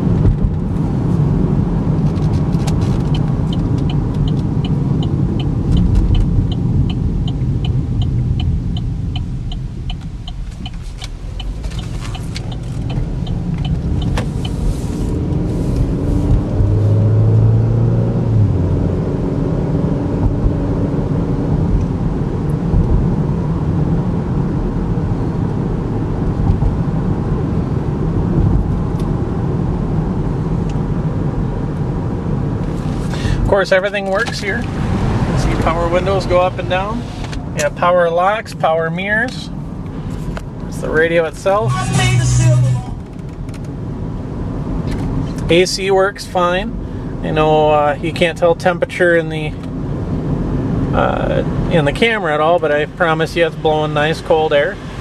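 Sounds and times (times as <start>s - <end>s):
car engine from inside cabin: 0.0s - 55.0s
regular ticking: 3.1s - 14.6s.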